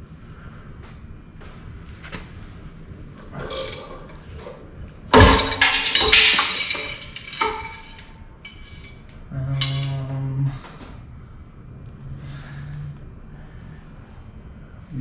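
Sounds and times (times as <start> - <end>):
metal clinking and rattling: 3.5 - 4.0, 5.2 - 10.1
loud crack of pulley breaking: 5.2 - 9.0.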